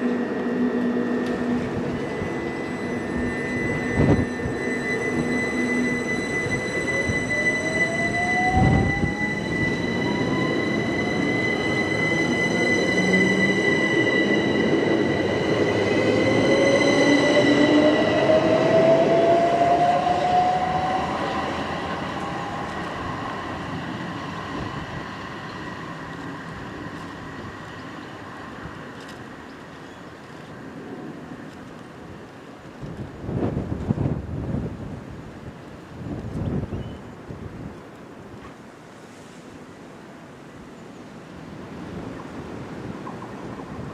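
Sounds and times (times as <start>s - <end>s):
steady high tone: 0.0s - 27.6s
train traction motor whine: 0.0s - 28.8s.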